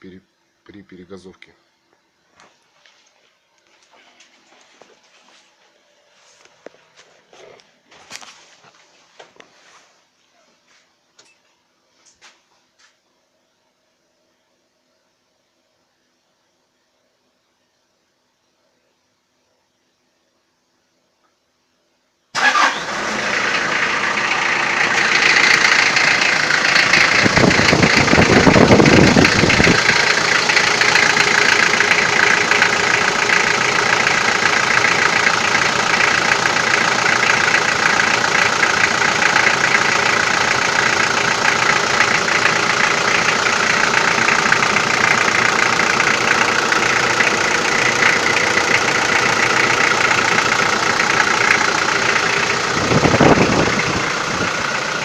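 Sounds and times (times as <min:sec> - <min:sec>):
diesel engine knocking: 0:23.5 - 0:55.0.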